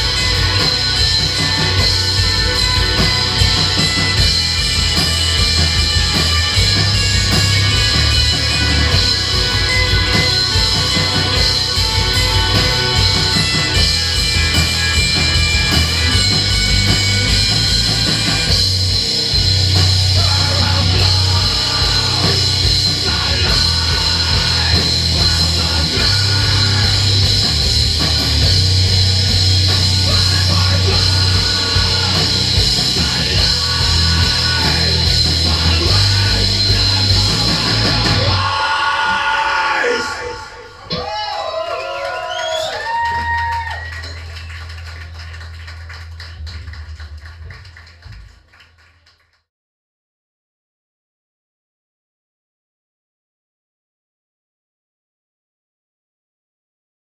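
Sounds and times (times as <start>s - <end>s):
live metal band playing: 0.0s - 41.3s.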